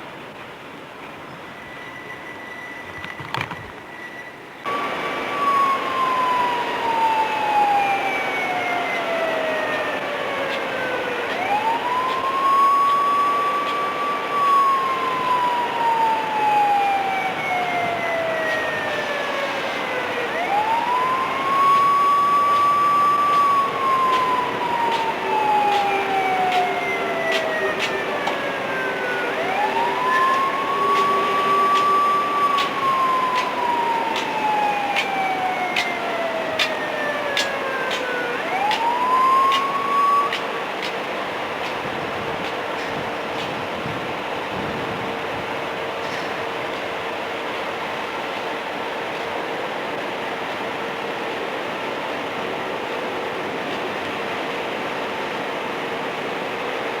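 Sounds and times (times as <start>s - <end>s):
siren wailing: 4.7s - 40.7s.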